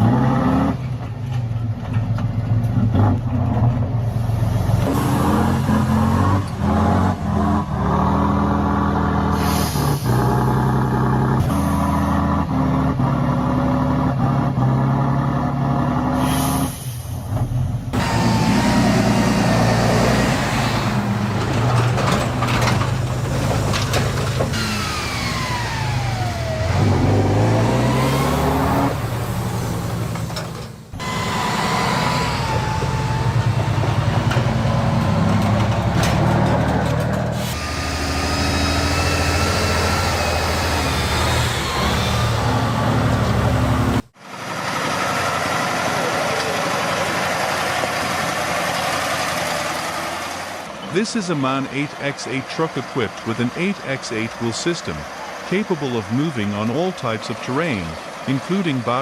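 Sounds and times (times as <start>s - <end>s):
heavy truck engine running: 0.8s - 59.0s
steady engine with less bass: 50.8s - 59.0s.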